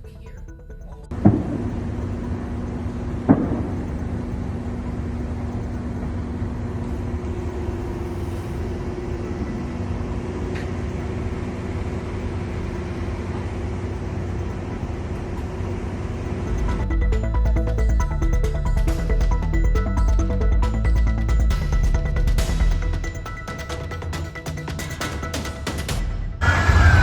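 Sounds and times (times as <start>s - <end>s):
faint hum: 0.0s - 22.1s.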